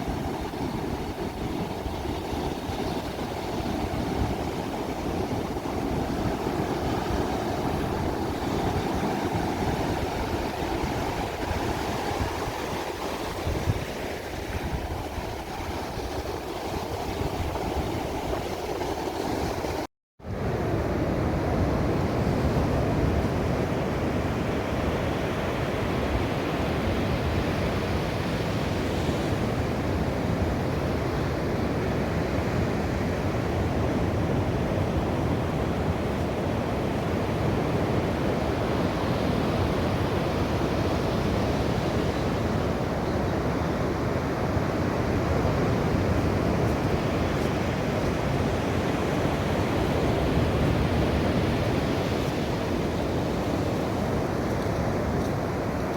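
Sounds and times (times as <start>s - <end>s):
sea waves and surf washing: 0.0s - 55.9s.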